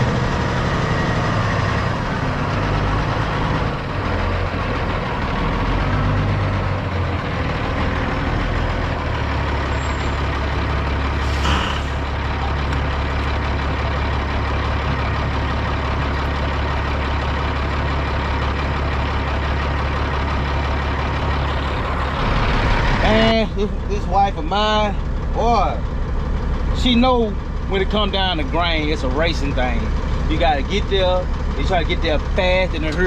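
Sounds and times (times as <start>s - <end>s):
diesel truck engine running: 0.0s - 33.0s
brief hiss: 11.2s - 12.0s.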